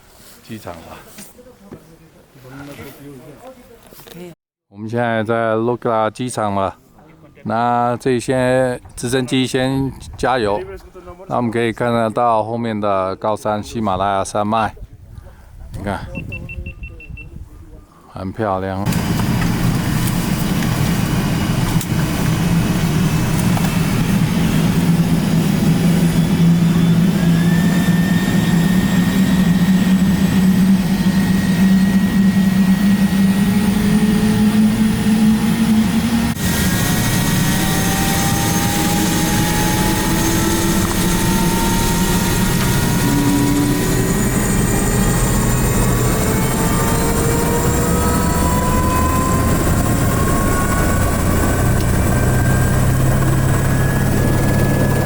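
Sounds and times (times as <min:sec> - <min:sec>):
helicopter engine and rotor: 0:18.9 - 0:55.0
turbine whine: 0:18.9 - 0:55.0.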